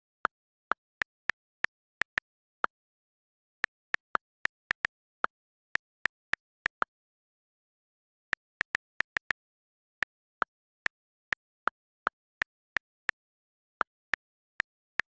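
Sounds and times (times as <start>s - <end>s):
phone keyboard key clicks: 8.4s - 11.0s.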